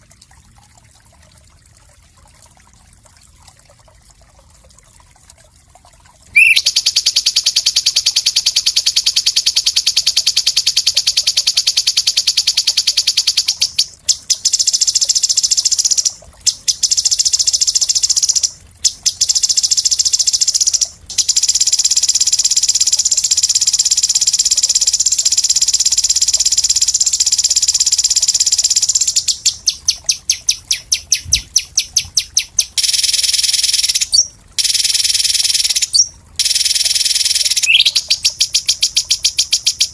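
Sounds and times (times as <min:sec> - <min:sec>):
songbird singing fast high trills: 0:06.4 - 0:39.9.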